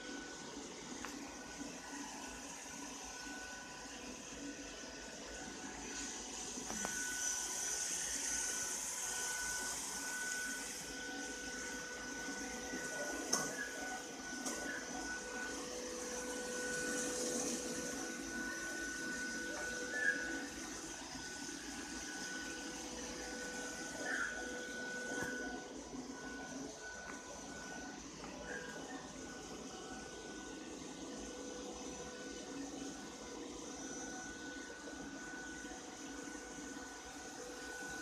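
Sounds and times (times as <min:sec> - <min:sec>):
robot vacuum cleaner running: 0:00.0 - 0:38.0.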